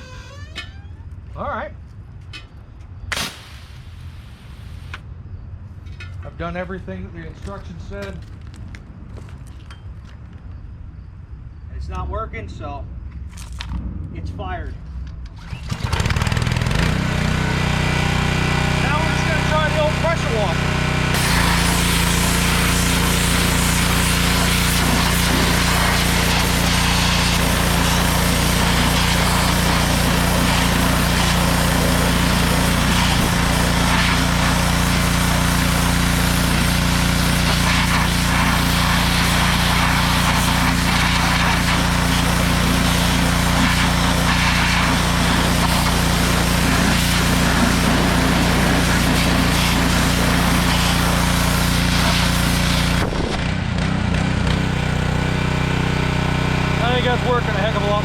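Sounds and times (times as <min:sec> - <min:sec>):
pressure washer engine running: 0:15.6 - 0:58.0
water spray hissing on wheel rim: 0:21.2 - 0:53.0.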